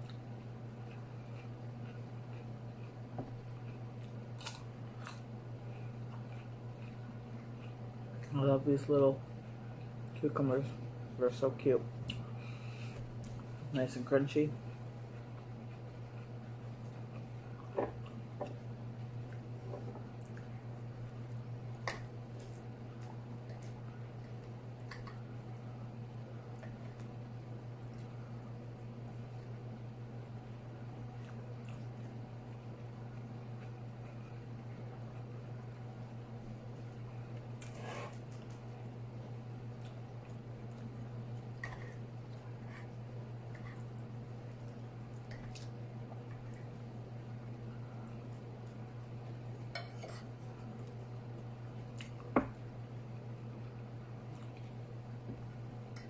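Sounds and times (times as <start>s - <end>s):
person chewing with wet mouth sounds: 0.0s - 8.4s, 14.7s - 27.2s, 31.0s - 36.0s, 36.6s - 52.3s, 54.2s - 54.8s
steady low hum: 0.0s - 56.0s.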